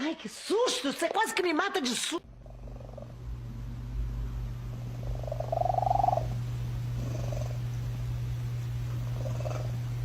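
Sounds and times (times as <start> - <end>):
cat purring: 2.2 - 3.2, 4.7 - 10.0.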